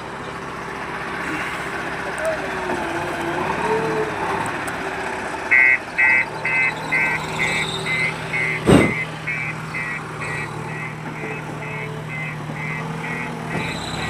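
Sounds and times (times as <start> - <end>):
engine running: 0.0 - 14.0
reversing alarm beeping: 5.5 - 14.0
loud thump: 8.6 - 9.0.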